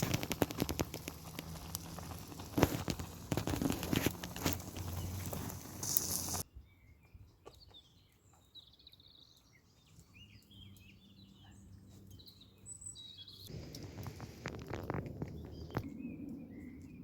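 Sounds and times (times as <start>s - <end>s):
loud crackling noise: 0.0s - 6.4s, 13.5s - 15.9s
small birds chirping: 0.0s - 17.0s.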